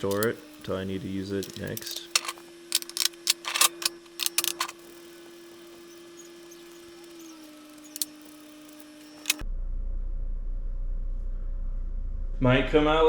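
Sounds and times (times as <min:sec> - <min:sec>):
metal tools clinking: 0:00.0 - 0:09.4
faint steady hum: 0:00.0 - 0:13.0.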